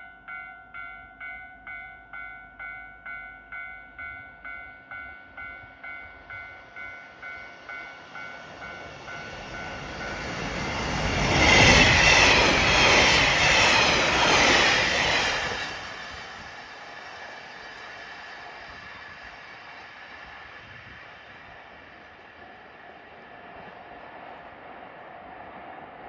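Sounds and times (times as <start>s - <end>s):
train wheel clatter: 8.3s - 21.4s.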